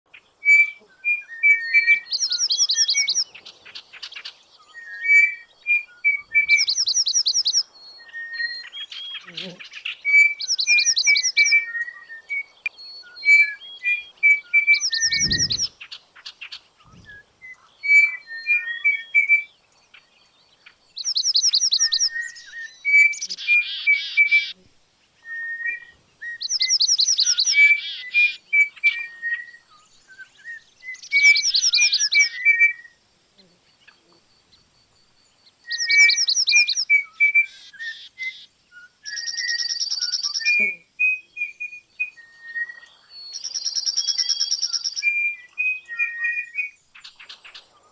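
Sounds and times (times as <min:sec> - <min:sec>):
bird song: 0:00.1 - 0:47.9.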